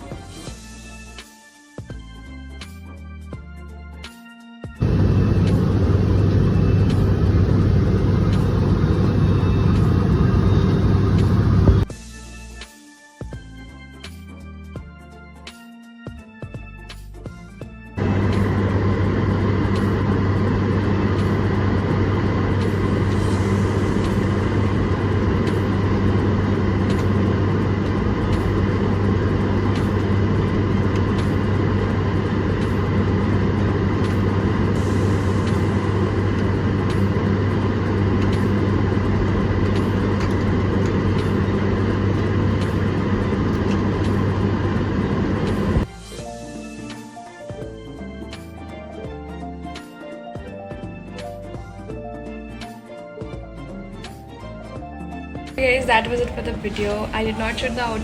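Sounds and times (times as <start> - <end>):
vehicle drone with low hum: 4.8 - 11.9, 18.0 - 45.9, 55.6 - 58.0.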